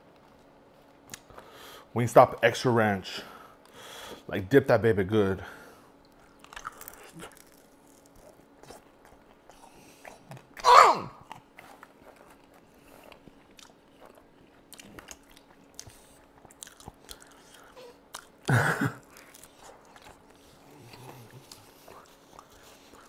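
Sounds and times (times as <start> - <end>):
crunchy chewing: 6.1 - 23.0.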